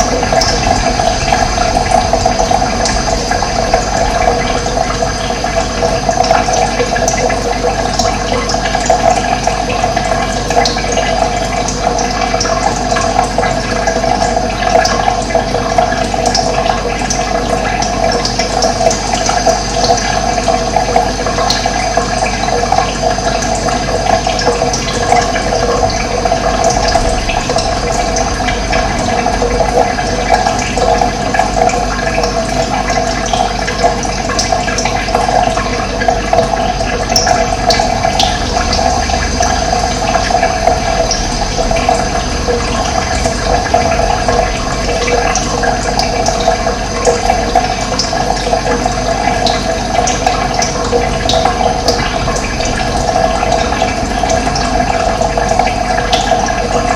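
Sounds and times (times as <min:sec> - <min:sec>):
running water rushing: 0:00.0 - 0:56.9.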